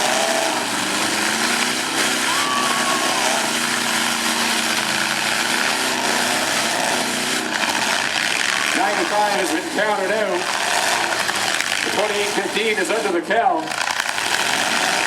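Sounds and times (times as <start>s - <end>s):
truck engines revving: 0.0s - 15.0s.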